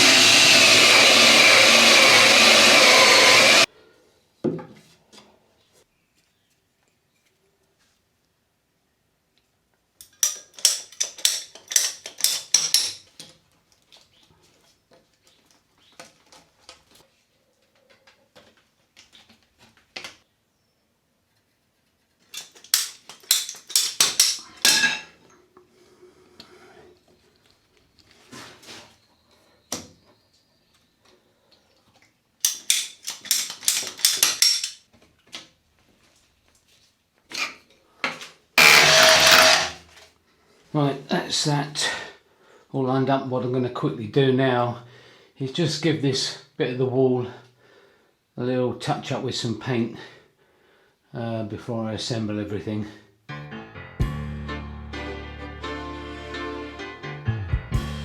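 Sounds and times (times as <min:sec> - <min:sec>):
hard parts clattering and knocking: 0:10.0 - 0:13.4, 0:22.2 - 0:25.2, 0:32.4 - 0:34.9, 0:38.6 - 0:39.9.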